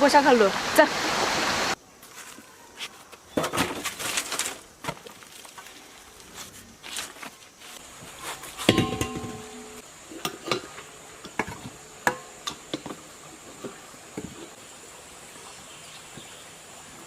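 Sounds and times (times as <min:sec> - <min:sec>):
metal piece struck and ringing: 0:08.7 - 0:09.8.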